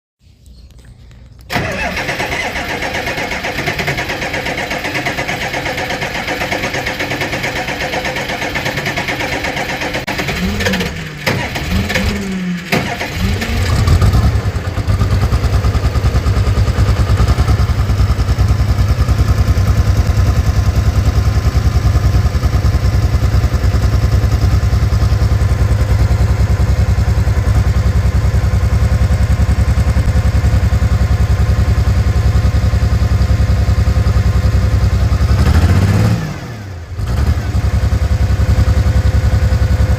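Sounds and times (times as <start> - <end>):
starter motor cranking: 1.5 - 14.6
tractor engine idling: 1.5 - 36.1, 36.9 - 39.9.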